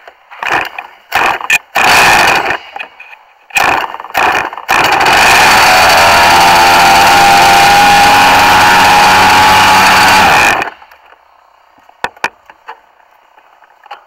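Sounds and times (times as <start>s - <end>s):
toy car motor running: 3.6s - 10.7s.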